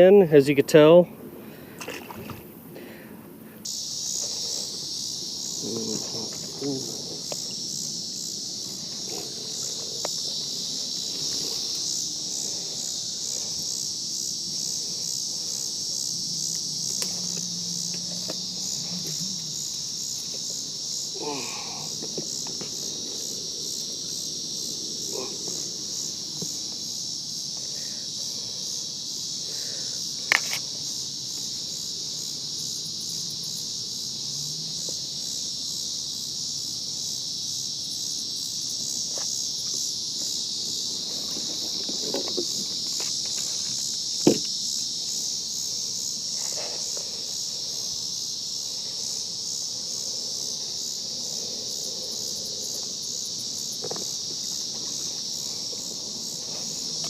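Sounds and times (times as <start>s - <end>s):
insects chirring: 0.0s - 57.0s
sharp knocks: 44.2s - 44.5s.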